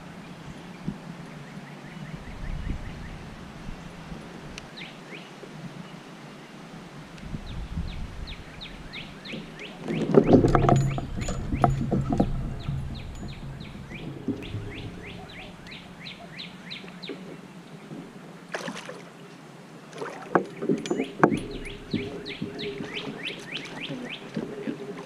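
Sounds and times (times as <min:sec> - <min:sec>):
knocks and rattles from kayak: 0:08.6 - 0:18.9, 0:20.0 - 0:25.0.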